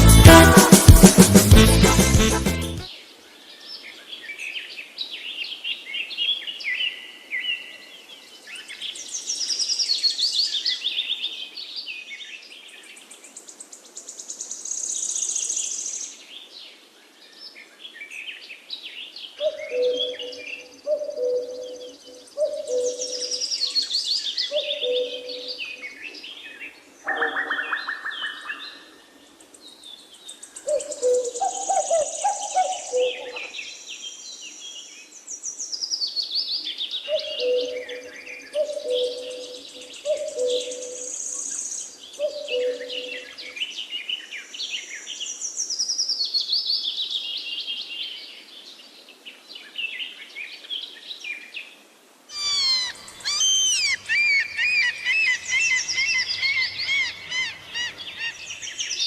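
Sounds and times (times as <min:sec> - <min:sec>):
songbirds singing: 0:03.4 - 0:51.7, 0:52.3 - 0:59.0
low two-note bird calls: 0:52.3 - 0:58.4.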